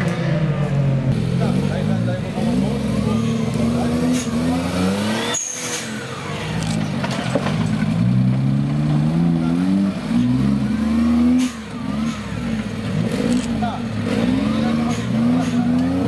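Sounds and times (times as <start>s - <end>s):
vehicle engine revving: 0.0s - 16.0s.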